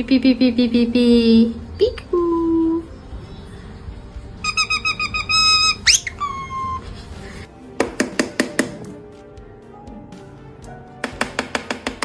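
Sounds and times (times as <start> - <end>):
parrot whistling: 4.4 - 7.0.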